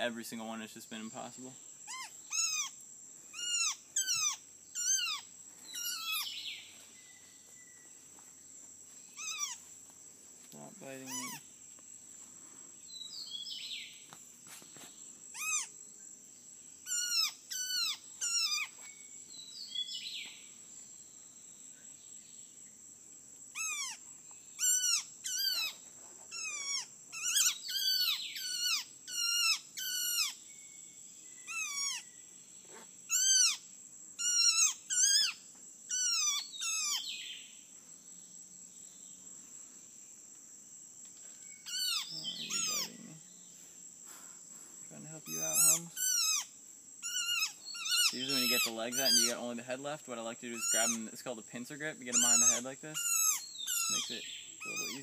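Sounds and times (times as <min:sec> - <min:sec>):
high insect drone: 0:00.0 - 0:55.0
bird distress calls: 0:01.8 - 0:07.3, 0:09.1 - 0:09.7, 0:10.8 - 0:11.5, 0:15.3 - 0:15.8, 0:16.8 - 0:20.4, 0:23.5 - 0:30.6, 0:31.3 - 0:37.5, 0:41.5 - 0:44.2, 0:45.2 - 0:49.6, 0:50.5 - 0:51.2, 0:52.0 - 0:55.0.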